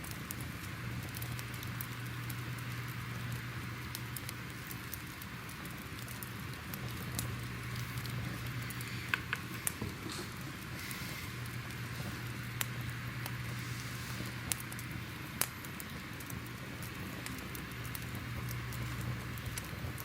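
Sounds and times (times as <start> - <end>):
fire crackles and pops: 0.0 - 20.0
steady hiss: 0.0 - 20.0
low hum: 6.4 - 15.4.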